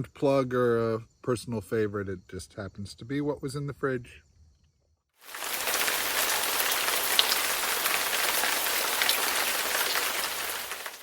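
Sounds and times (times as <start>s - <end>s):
heavy rain: 5.2s - 11.0s
raindrops striking close by: 5.2s - 11.0s.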